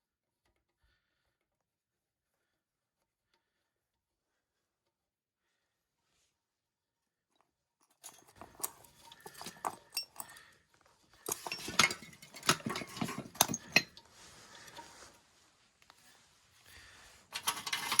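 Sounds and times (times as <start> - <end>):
metal parts and tools clinking: 7.9 - 10.6, 11.2 - 15.2, 17.3 - 18.0.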